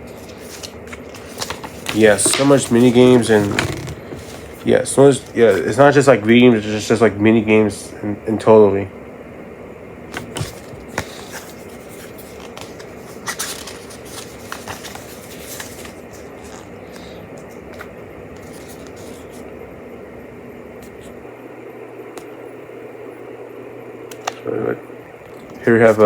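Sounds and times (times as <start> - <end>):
paper pages rustling: 0.0 - 5.8, 10.1 - 19.5, 25.5 - 26.0
steady background hum: 0.0 - 26.0.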